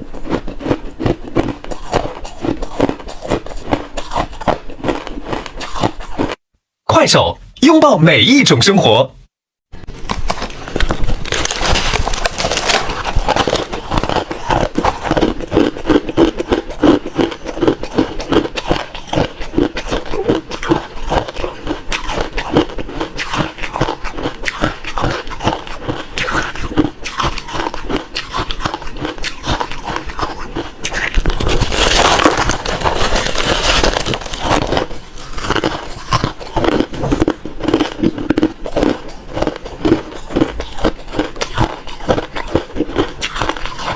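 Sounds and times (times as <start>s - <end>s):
ice being chewed: 0.0s - 6.4s, 9.8s - 43.9s.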